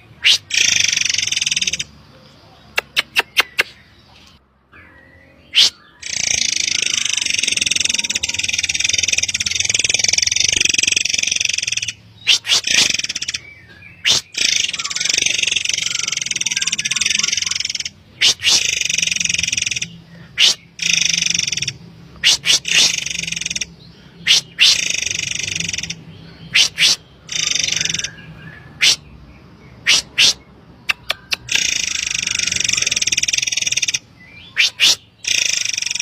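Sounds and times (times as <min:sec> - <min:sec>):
bird harsh buzzy rasping calls: 0:00.0 - 0:02.0, 0:05.5 - 0:36.0
bird shrill high-pitched notes: 0:04.8 - 0:13.5, 0:14.1 - 0:23.7.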